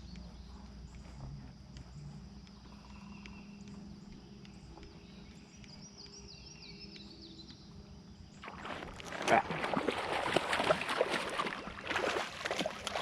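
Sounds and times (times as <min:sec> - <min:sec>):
warbling bird song: 0:00.0 - 0:08.9
birds chirping: 0:00.0 - 0:09.4.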